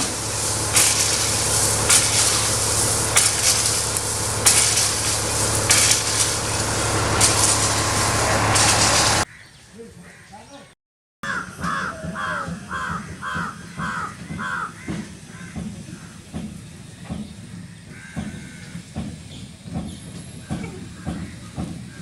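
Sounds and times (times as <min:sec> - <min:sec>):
low rumble: 0:00.0 - 0:09.2
crow cawing: 0:11.2 - 0:16.2, 0:17.9 - 0:18.7
irregular knocks: 0:11.6 - 0:21.8.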